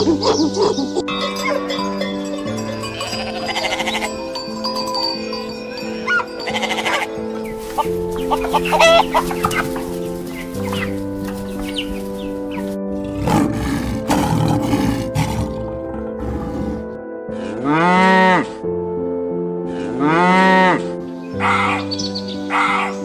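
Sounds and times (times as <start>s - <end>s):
background music with held chords: 0.0s - 23.0s
chickens clucking: 6.8s - 12.7s.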